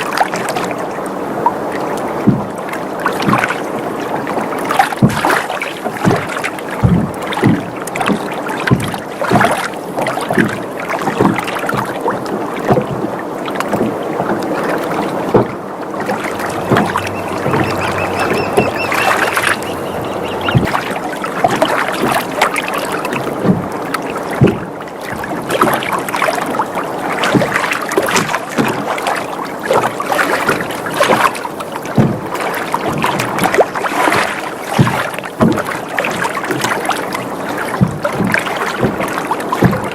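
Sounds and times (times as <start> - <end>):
water slapping against hull: 0.0 - 39.9
boat timbers creaking: 12.7 - 24.8.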